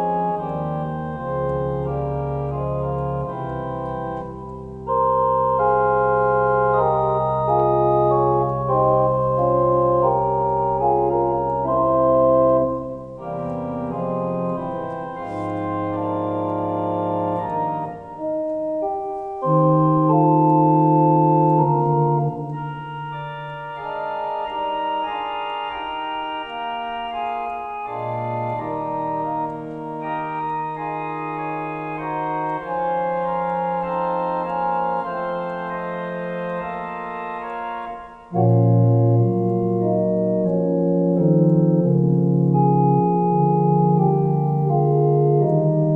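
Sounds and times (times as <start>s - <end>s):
organ playing sustained chords: 0.0s - 45.9s.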